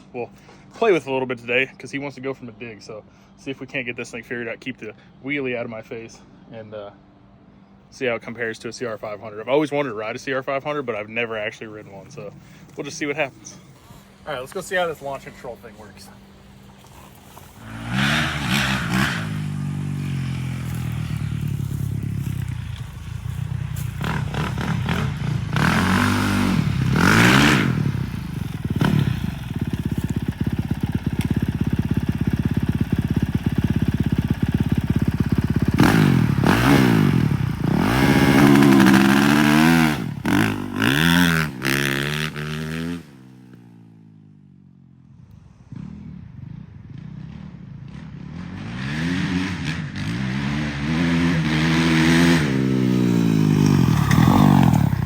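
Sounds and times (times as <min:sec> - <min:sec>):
dirt bike engine revving: 0:16.8 - 0:43.8, 0:47.0 - 0:55.0.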